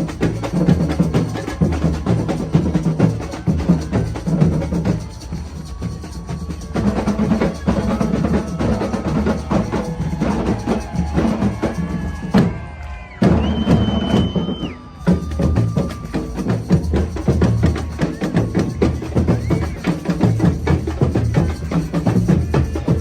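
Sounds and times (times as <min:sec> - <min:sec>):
samba drum ensemble: 0:00.0 - 0:23.0
long high whistle: 0:11.6 - 0:16.9.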